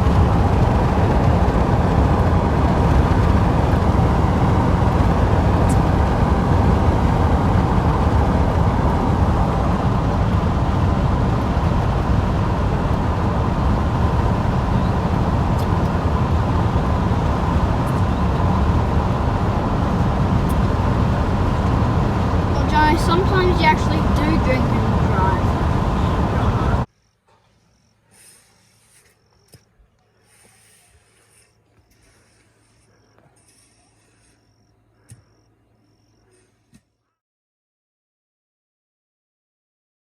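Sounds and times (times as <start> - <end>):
road noise: 0.0 - 26.9
vehicle engine drone: 0.0 - 26.9.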